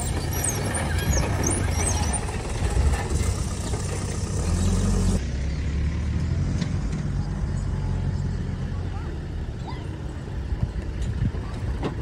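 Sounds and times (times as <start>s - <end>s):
off-road vehicle engines: 0.0s - 12.0s.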